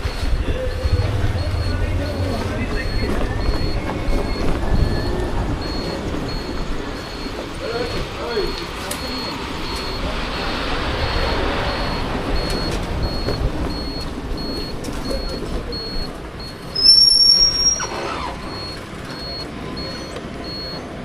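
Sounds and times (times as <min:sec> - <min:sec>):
road and wind noise: 0:00.0 - 0:21.0
short high beeps: 0:00.1 - 0:10.0
high-pitched squeal: 0:00.4 - 0:06.0.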